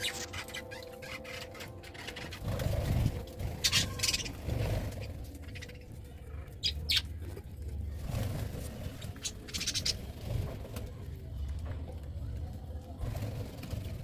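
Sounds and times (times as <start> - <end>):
budgerigars chirping: 0.0 - 5.9, 9.2 - 10.0.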